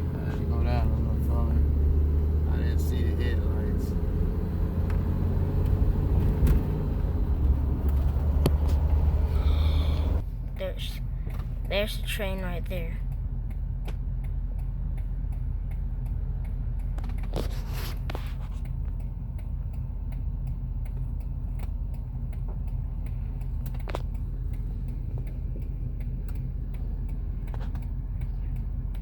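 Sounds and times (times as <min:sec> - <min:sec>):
engine idling rumble: 0:00.0 - 0:29.0
faint regular ticking: 0:10.4 - 0:17.3, 0:17.9 - 0:29.0.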